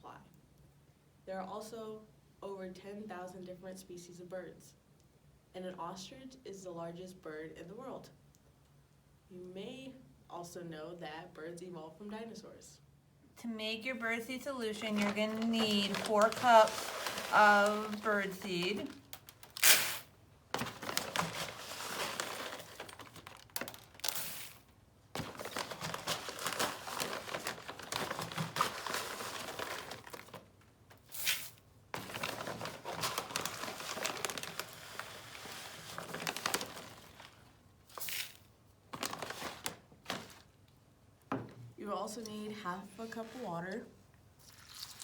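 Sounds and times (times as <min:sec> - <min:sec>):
crinkling: 0:14.4 - 0:40.7.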